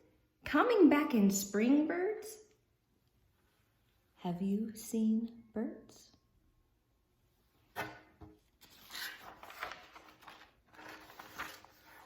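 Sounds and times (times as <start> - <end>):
paper page rustling: 8.6 - 12.0.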